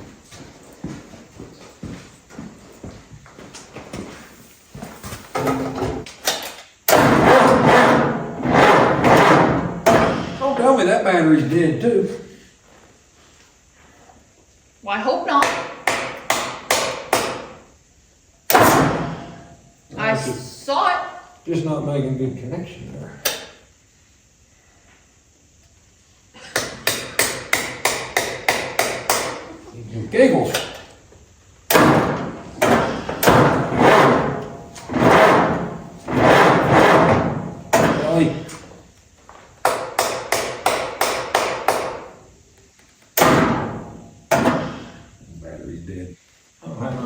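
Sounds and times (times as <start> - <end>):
hammer striking metal: 6.9 - 10.2, 15.4 - 17.5, 26.6 - 29.4, 31.7 - 38.1, 39.6 - 42.1, 43.2 - 44.7.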